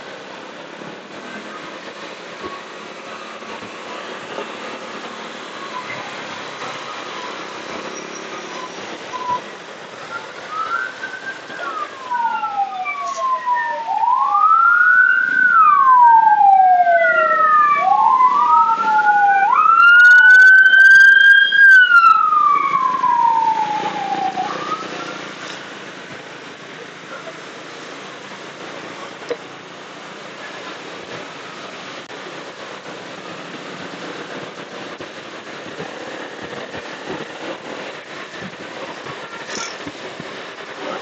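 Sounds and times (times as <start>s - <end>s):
road and wind noise: 0.0s - 41.0s
emergency siren wailing: 1.3s - 25.4s.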